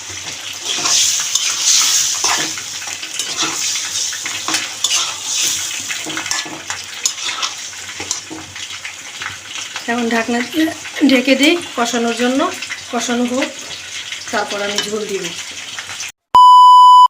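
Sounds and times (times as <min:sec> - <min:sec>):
meat sizzling in hot oil: 0:00.0 - 0:16.2
spoon stirring and clinking on pot: 0:03.2 - 0:08.6.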